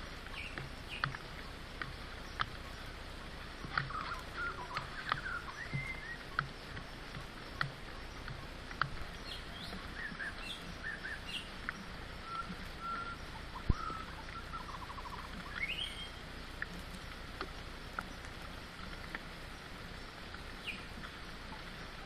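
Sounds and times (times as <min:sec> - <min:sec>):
steady background hiss: 0:00.0 - 0:22.0
birds chirping and whistling: 0:03.9 - 0:06.2, 0:09.2 - 0:11.5, 0:12.2 - 0:16.2.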